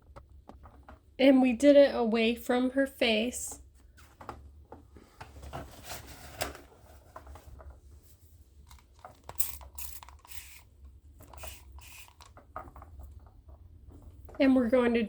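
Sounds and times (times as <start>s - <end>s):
hair rustling on rollers: 11.2s - 13.3s.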